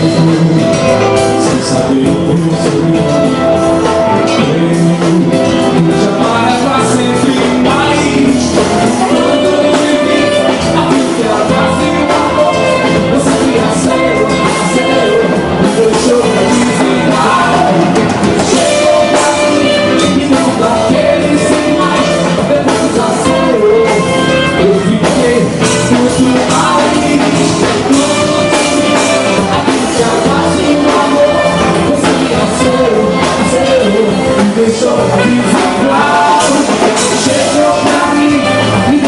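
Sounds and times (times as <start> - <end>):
drum kit: 0.0 - 39.0
live band playing loud music: 0.0 - 39.0
person singing: 0.0 - 39.0.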